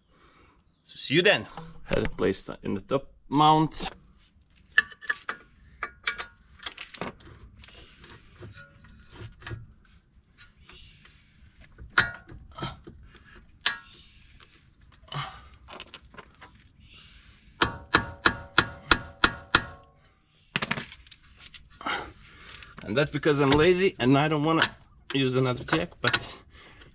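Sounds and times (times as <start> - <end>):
metal parts clanking and rattling: 4.6 - 9.7, 11.7 - 14.0, 17.6 - 26.9.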